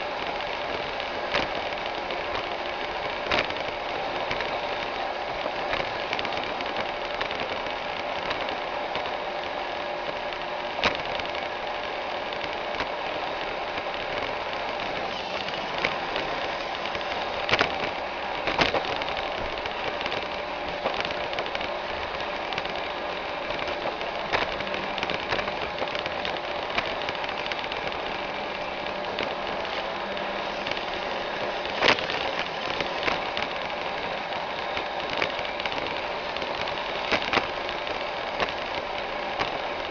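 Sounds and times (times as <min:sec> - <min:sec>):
robot vacuum whirring: 0:12.6 - 0:39.9.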